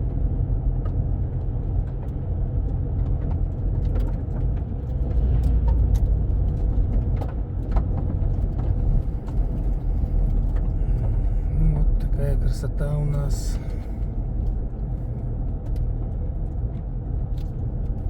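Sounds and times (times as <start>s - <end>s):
car engine and tyre rumble: 0.0s - 18.0s
small clicks and rattles: 13.7s - 18.0s.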